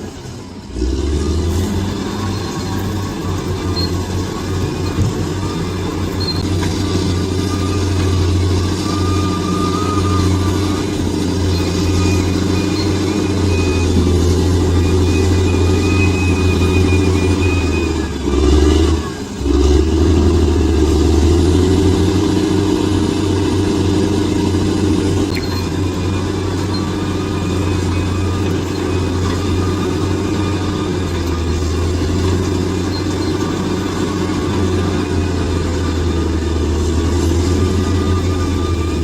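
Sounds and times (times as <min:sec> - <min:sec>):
bulldozer diesel engine running: 0:00.0 - 0:39.0.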